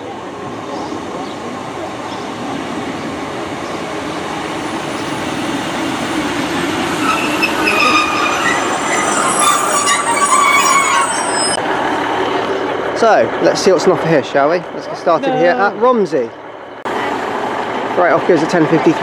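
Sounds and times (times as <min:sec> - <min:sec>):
train rumble: 0:00.0 - 0:19.0
brakes and wheels squealing: 0:00.5 - 0:13.0.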